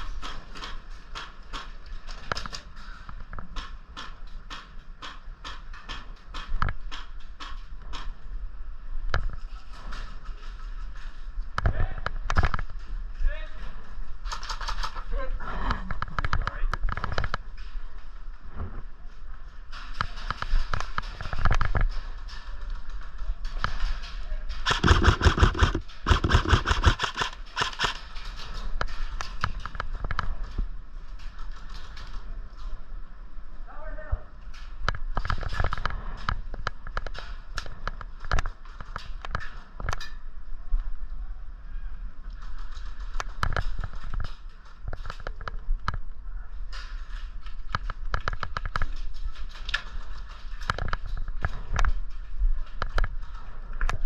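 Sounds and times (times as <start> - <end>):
airsoft automatic fire bursts: 24.6 - 28.0.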